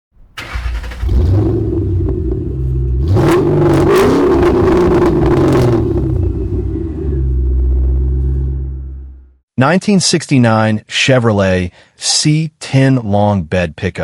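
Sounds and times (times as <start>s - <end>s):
car engine revving and idling: 0.2s - 9.4s.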